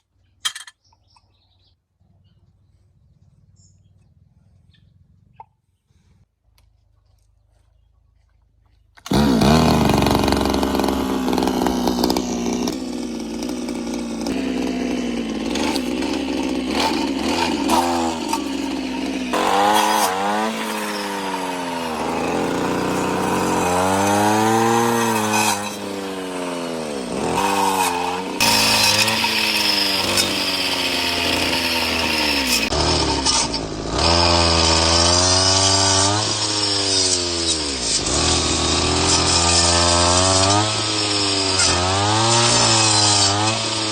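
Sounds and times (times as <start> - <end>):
brush cutter engine running: 9.0 - 43.9.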